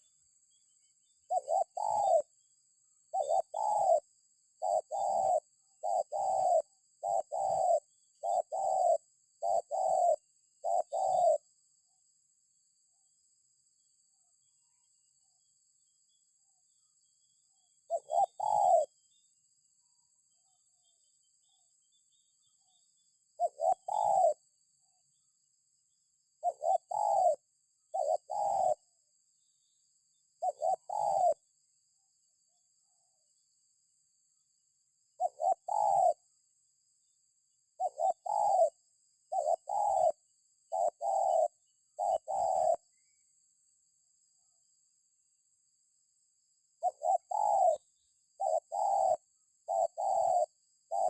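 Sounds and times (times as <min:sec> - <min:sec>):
dove cooing: 0:01.2 - 0:02.4, 0:03.0 - 0:11.6, 0:17.8 - 0:19.1, 0:23.4 - 0:24.5, 0:26.4 - 0:28.9, 0:30.4 - 0:31.4, 0:35.2 - 0:36.3, 0:37.8 - 0:43.2, 0:46.8 - 0:51.0.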